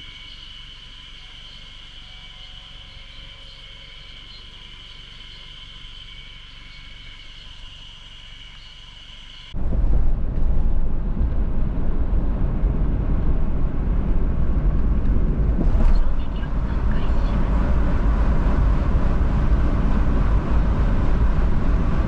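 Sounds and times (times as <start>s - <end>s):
cicadas singing: 0.0s - 9.6s
car rumbling on the move: 9.5s - 22.0s.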